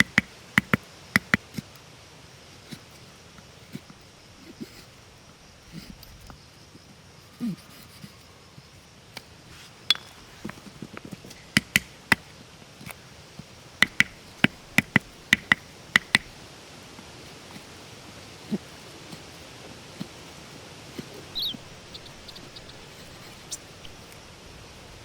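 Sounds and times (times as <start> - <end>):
sharp ringing knocks: 9.9 - 10.2, 13.8 - 16.3.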